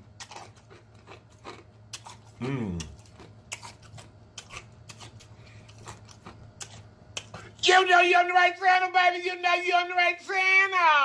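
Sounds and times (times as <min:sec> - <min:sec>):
chewing and lip-smacking: 0:00.2 - 0:07.6
person humming mmm: 0:02.4 - 0:03.0.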